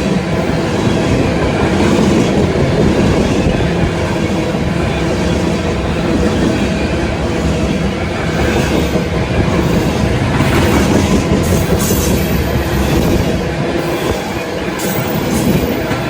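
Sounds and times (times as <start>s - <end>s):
train wheels rumbling on rails: 0.0s - 16.0s
wheels clacking over rail joints: 0.8s - 16.0s.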